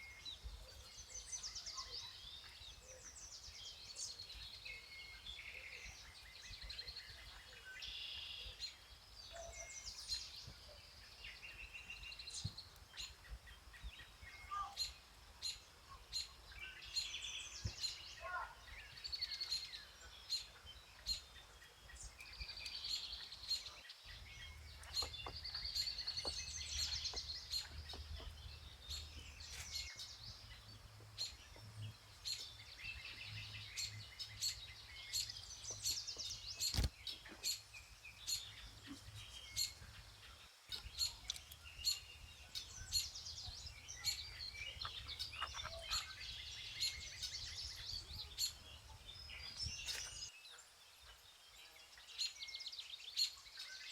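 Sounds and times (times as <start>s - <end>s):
songbirds chirping and trilling: 0.0s - 53.9s
short sharp clicks: 36.6s - 36.9s.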